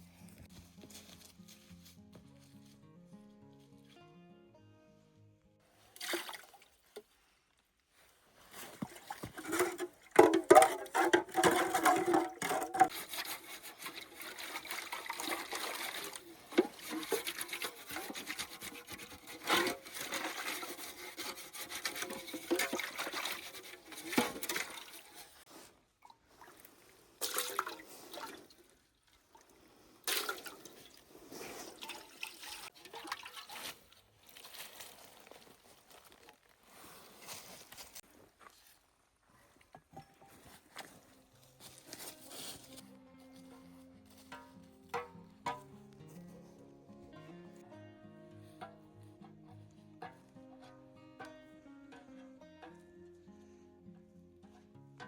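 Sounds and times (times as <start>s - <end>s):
water pouring and splashing: 5.9s - 7.1s, 8.5s - 37.6s.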